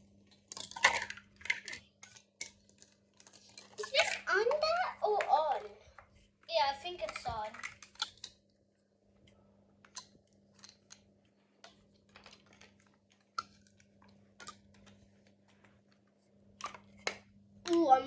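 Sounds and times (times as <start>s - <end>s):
plastic bricks clicking together: 0.3s - 5.3s, 7.0s - 8.4s.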